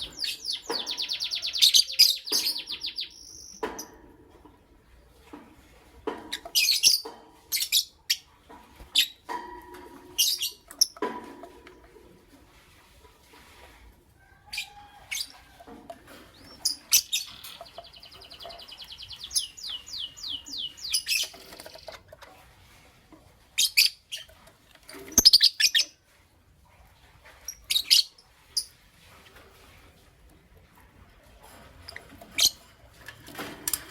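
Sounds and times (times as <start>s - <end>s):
lovebirds chirping: 0.0s - 3.9s, 16.3s - 22.0s, 25.2s - 26.0s.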